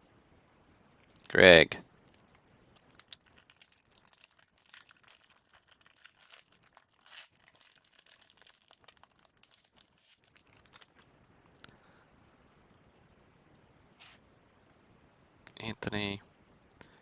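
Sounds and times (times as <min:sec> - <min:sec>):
wrapper crinkling and tearing: 0:01.1 - 0:01.4, 0:02.1 - 0:11.1.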